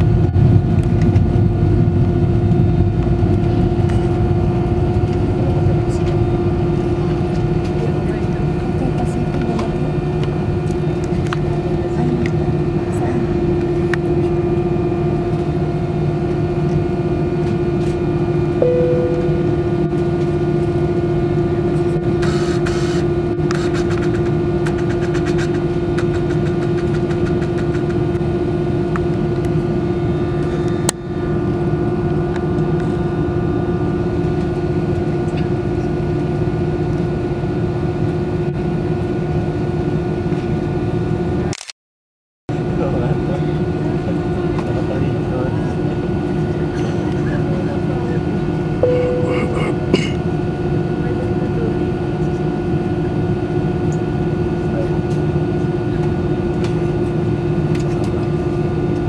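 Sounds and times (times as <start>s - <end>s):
constant hum: 0.0s - 40.7s, 42.5s - 59.0s
jet engines droning in cabin: 0.0s - 41.5s, 42.5s - 59.0s
short beep: 18.6s - 20.1s, 48.8s - 49.9s.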